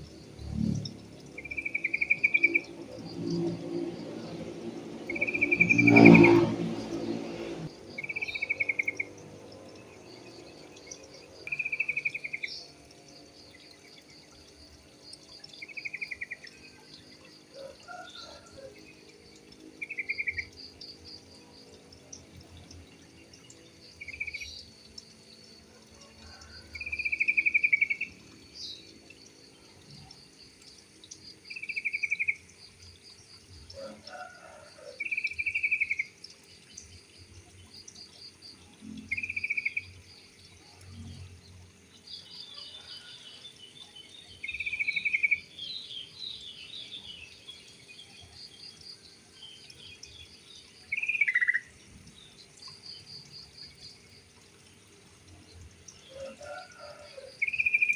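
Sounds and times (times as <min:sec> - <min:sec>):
high-pitched pulsing chirp: 0:05.1 - 0:09.1.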